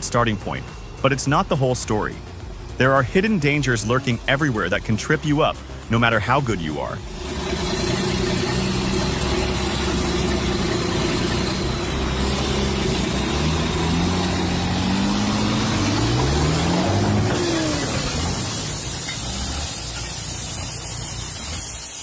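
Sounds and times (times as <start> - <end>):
heavy machine engine revving: 7.0 - 22.0.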